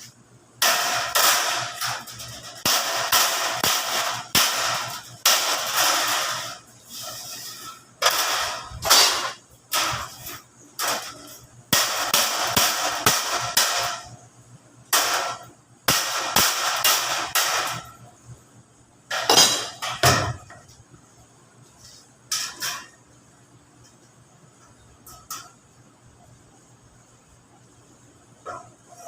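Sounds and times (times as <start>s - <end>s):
hammer on sheet metal: 0.6s - 14.2s, 14.9s - 18.0s
sheet metal rattling: 0.6s - 14.2s.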